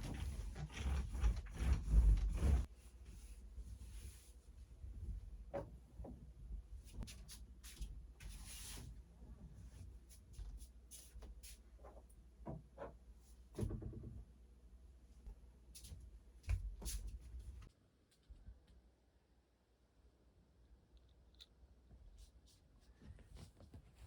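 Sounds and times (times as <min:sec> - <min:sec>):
rustling scrape: 0:00.0 - 0:04.4.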